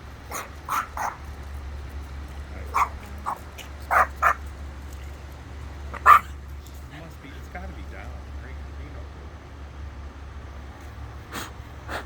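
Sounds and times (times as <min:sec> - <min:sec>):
steady low hum: 0:00.0 - 0:12.0
dog barking and yipping: 0:00.2 - 0:01.3, 0:02.6 - 0:04.6, 0:05.9 - 0:06.4.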